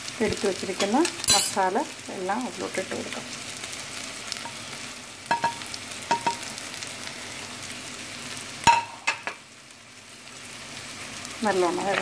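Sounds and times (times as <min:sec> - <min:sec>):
onions sizzling in oil: 0:00.0 - 0:12.0
spoon knocking against pot: 0:05.3 - 0:06.5, 0:08.7 - 0:09.4.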